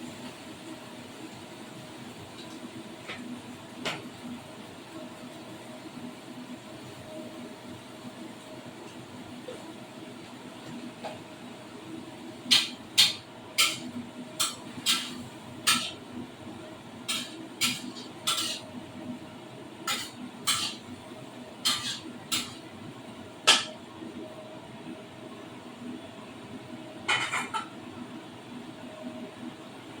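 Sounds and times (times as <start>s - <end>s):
utensil clinking against pan: 12.5s - 16.0s, 17.1s - 18.6s, 19.9s - 20.8s, 21.6s - 22.6s.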